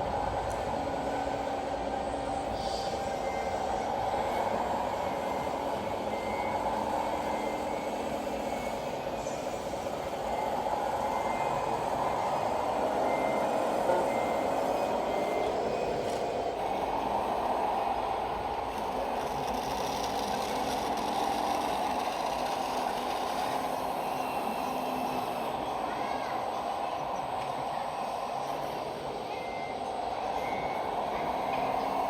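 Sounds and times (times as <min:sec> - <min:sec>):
toy truck drive noise: 0:18.6 - 0:25.2.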